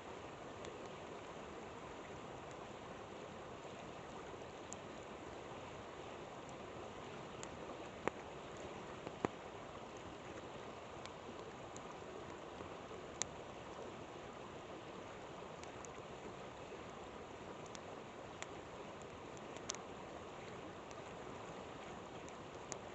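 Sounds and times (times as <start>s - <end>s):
river flowing: 0.0s - 22.9s
campfire popping and crackling: 17.6s - 19.8s.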